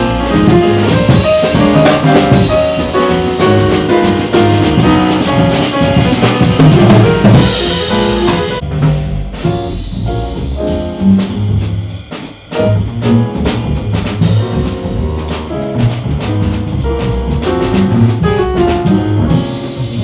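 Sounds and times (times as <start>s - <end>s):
bass notes: 0.0s - 20.0s
drum kit playing: 0.0s - 20.0s
piano: 0.0s - 20.0s.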